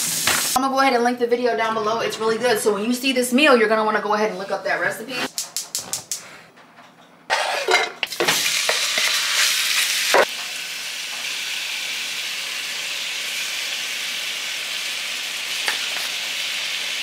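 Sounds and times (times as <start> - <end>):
chicken sizzling in hot oil: 0.0 - 0.6, 8.1 - 17.0
spatula scraping bowl: 7.3 - 8.1.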